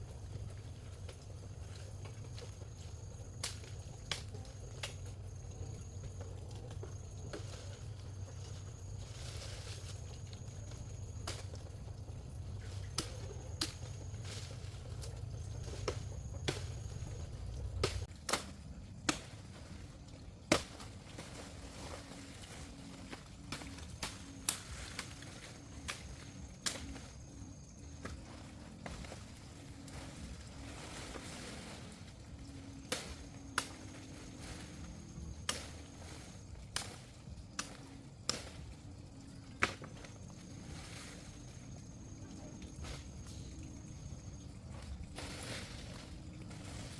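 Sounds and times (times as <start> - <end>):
low rumble: 7.0 - 18.2.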